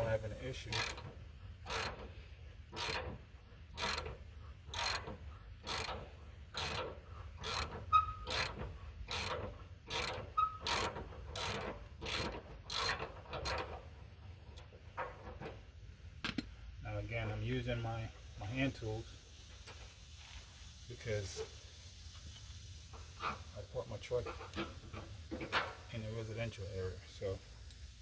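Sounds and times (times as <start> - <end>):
socket ratchet clicking: 0.7 - 2.1, 2.7 - 13.7.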